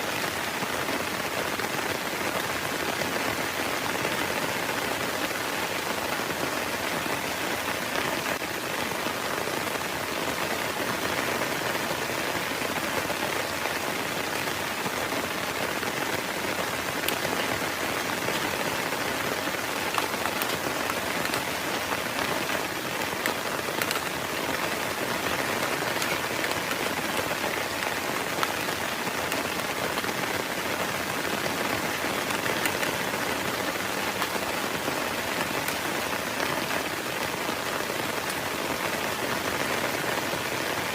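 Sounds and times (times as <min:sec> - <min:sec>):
heavy rain: 0:00.0 - 0:40.9
individual raindrop hits: 0:14.3 - 0:30.4.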